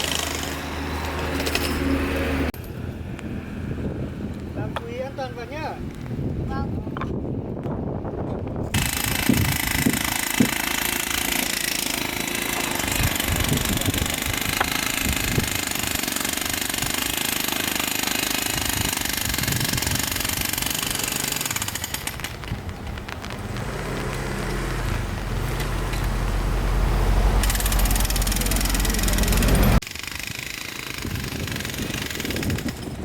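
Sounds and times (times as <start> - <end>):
jackhammer hammering: 0.0 - 2.0, 8.7 - 22.6, 23.4 - 26.4, 27.4 - 33.0.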